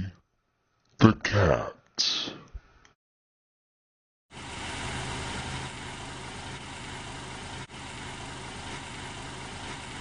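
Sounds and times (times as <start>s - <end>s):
car engine running: 4.4s - 10.0s.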